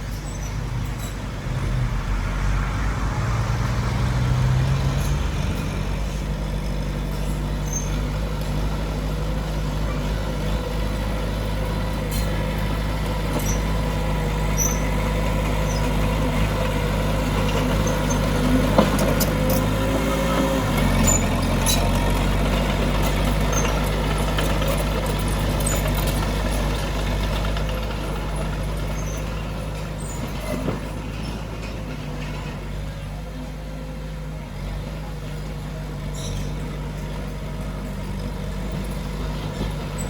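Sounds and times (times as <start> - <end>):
diesel engine running under load: 0.0 - 40.0
faint high clicks and squeaks: 7.1 - 8.1, 14.5 - 14.9, 36.1 - 37.1.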